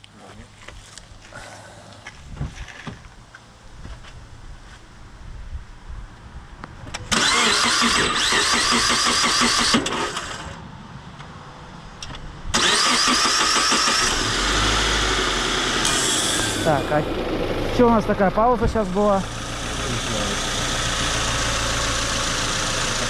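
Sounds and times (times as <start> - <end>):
starter motor cranking: 7.1 - 10.5, 12.6 - 14.6
car engine running: 12.6 - 23.0.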